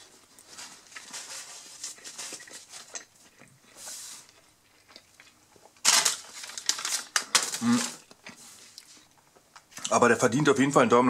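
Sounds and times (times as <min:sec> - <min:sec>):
man chewing: 0:00.0 - 0:05.8, 0:07.1 - 0:09.9.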